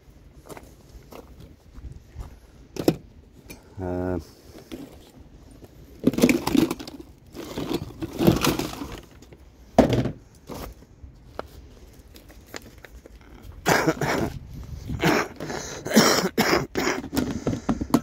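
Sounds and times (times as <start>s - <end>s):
items being rummaged through: 4.5s - 13.2s.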